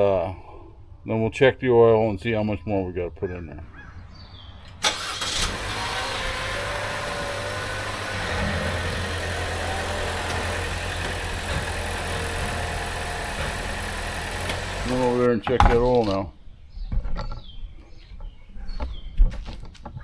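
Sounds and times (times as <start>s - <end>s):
car engine running: 5.6s - 15.8s
brief knock: 15.4s - 15.9s.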